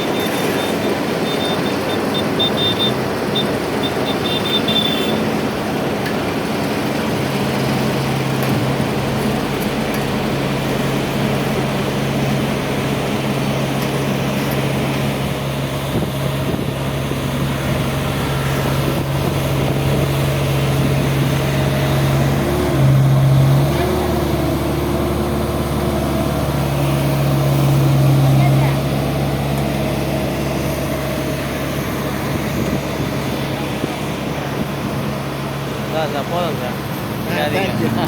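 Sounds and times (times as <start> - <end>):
heavy diesel engine running: 0.0 - 38.0.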